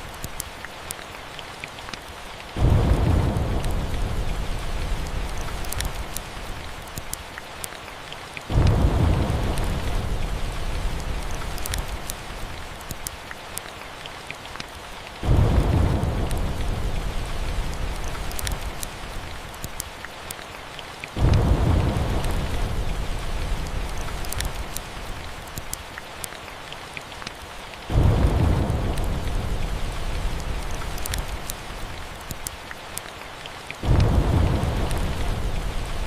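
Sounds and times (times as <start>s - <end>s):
steady rain: 0.0s - 36.0s
deep thunder rumbles: 2.6s - 6.2s, 8.5s - 12.5s, 15.2s - 19.1s, 21.2s - 24.8s, 27.9s - 31.9s, 33.8s - 36.0s.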